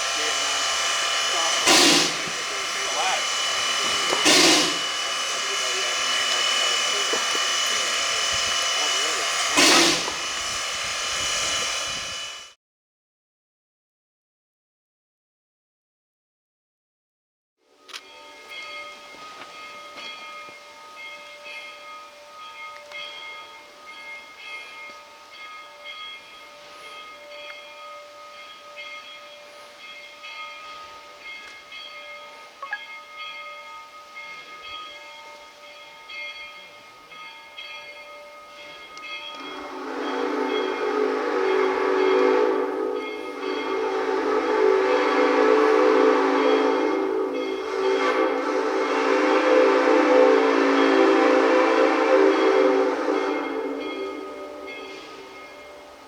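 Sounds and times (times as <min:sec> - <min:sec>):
steam locomotive whistle blasts: 0:00.0 - 0:12.6, 0:39.3 - 0:56.0
steam rushing: 0:00.0 - 0:12.6, 0:38.6 - 0:56.0.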